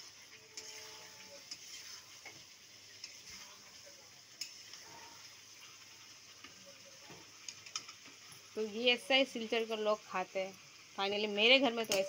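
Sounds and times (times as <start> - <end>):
spatula stirring: 0.0 - 8.4
curry sizzling in a pan: 0.0 - 12.0.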